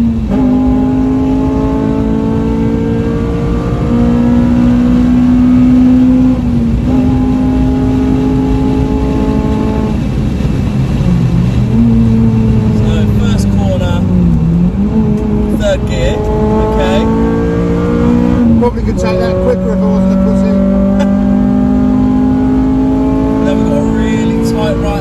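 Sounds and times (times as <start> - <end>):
car engine pulling under load: 0.0 - 25.0.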